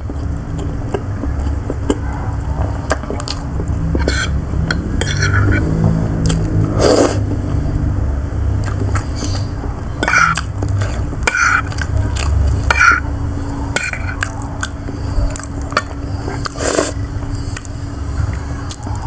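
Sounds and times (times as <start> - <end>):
steady low hum: 0.0 - 19.0
cutlery scraping a dish: 4.0 - 4.4, 5.0 - 5.7.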